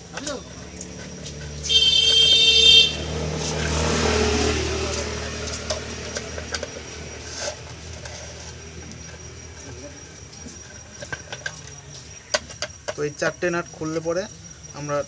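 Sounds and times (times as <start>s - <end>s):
road vehicle passing: 0.0s - 11.1s
vehicle horn: 1.6s - 3.3s.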